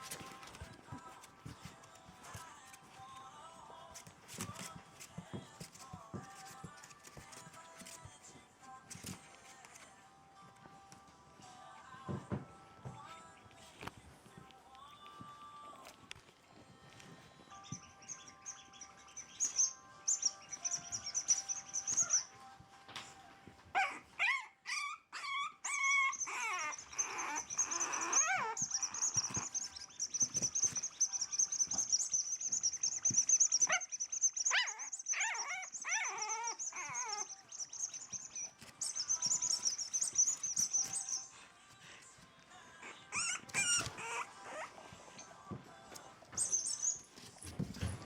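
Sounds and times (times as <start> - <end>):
puppies whimpering and crying: 15.8 - 48.0.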